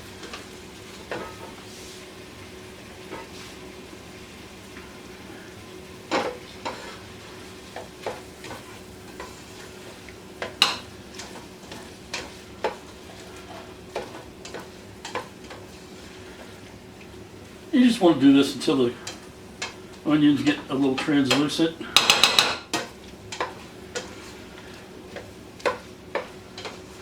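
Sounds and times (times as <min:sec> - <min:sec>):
onions sizzling in butter: 0:00.0 - 0:27.0
spoon scraping and knocking pot: 0:22.0 - 0:24.3.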